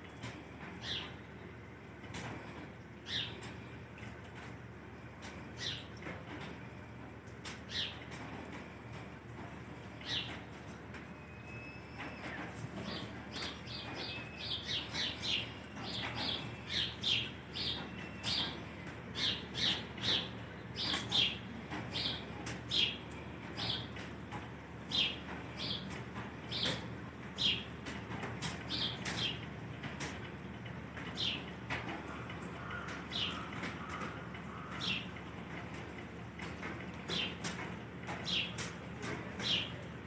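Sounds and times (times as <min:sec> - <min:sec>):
low background hum: 0:00.0 - 0:40.0
birds chirping: 0:12.2 - 0:23.0, 0:32.5 - 0:35.2, 0:39.3 - 0:39.9.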